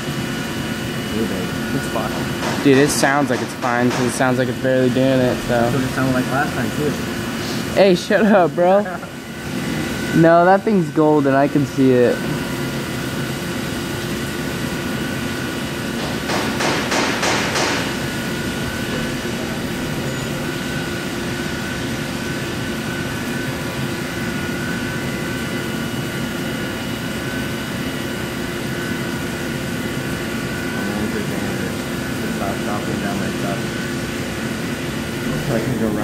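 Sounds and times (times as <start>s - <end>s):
mill machine hum and whine: 0.0s - 36.0s.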